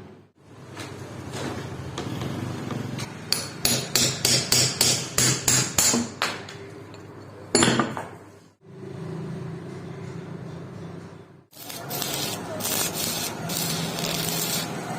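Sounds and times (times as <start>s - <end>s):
hammer strikes: 2.7s - 6.4s.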